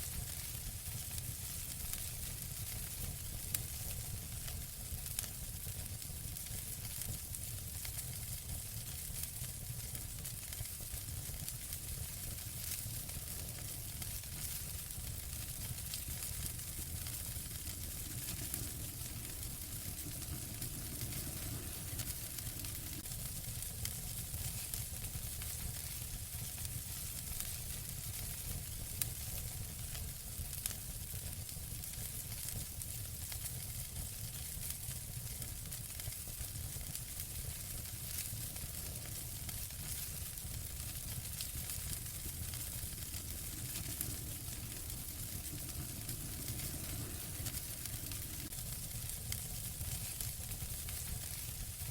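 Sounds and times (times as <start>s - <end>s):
wood fire crackling: 0.0s - 51.9s
loud fire pops: 8.8s - 30.0s, 34.4s - 51.9s.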